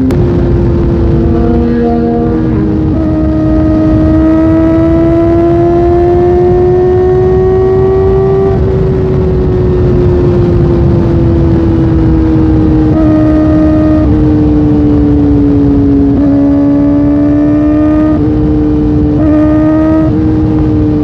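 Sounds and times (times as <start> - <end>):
steady low rush: 0.0 - 13.0.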